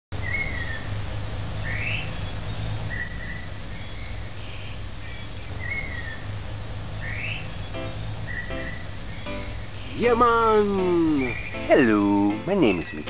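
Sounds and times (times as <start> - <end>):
whistled bird calls: 11.0 - 12.0.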